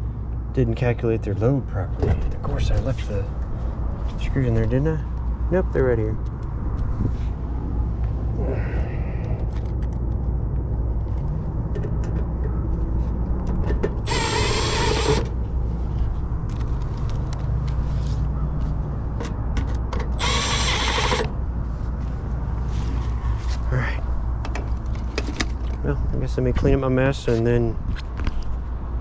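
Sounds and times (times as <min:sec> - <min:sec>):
cordless screwdriver driving screws: 0:14.1 - 0:15.4, 0:20.2 - 0:21.3.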